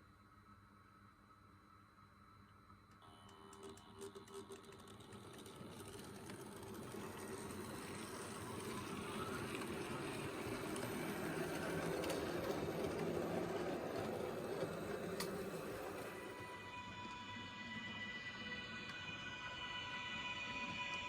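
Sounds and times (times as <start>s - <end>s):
model train whirring on track: 3.0s - 21.0s.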